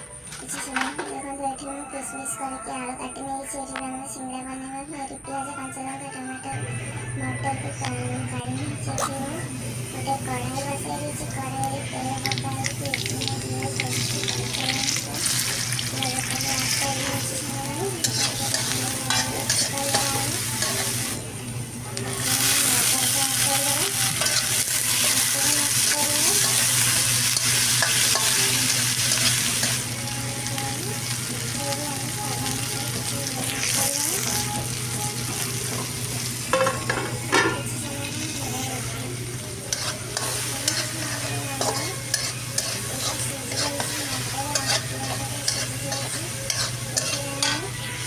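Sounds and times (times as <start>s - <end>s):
vegetables sizzling in hot oil: 8.9s - 21.3s, 22.0s - 48.0s
spatula scraping metal pan: 23.8s - 29.8s, 39.7s - 47.6s.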